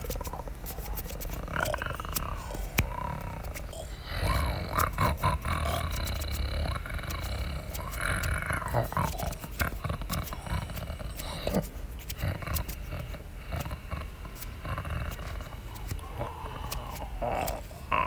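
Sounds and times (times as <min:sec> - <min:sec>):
large predators roaring and growling: 0:01.4 - 0:11.5, 0:13.8 - 0:18.0.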